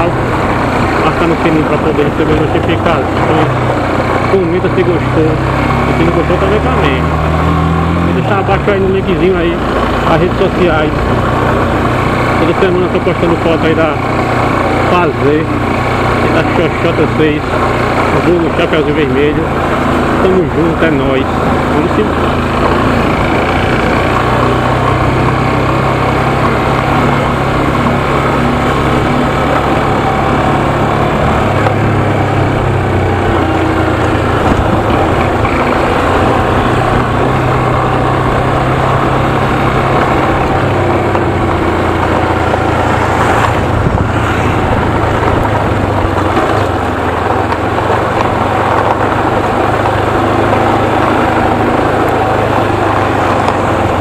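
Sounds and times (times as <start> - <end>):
motorcycle engine running: 0.0 - 54.0
wind noise: 21.2 - 54.0.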